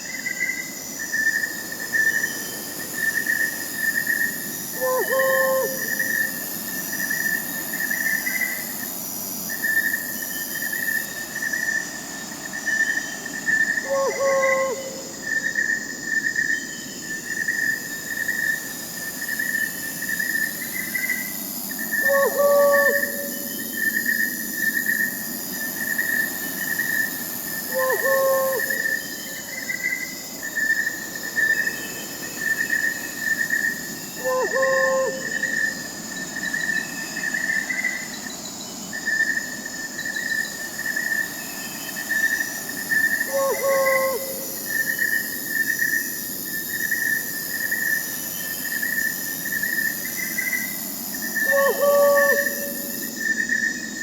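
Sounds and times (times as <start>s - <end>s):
crickets chirping: 0.0s - 54.0s
low owl hoot: 4.8s - 6.4s, 13.8s - 15.1s, 22.0s - 23.7s, 27.7s - 29.5s, 34.2s - 35.6s, 43.2s - 44.9s, 51.4s - 53.1s.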